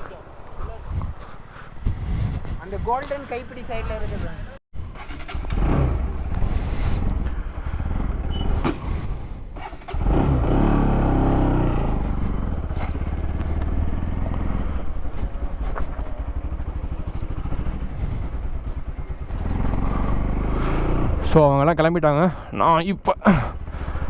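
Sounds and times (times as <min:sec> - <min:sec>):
motorcycle engine accelerating: 0:04.8 - 0:24.0.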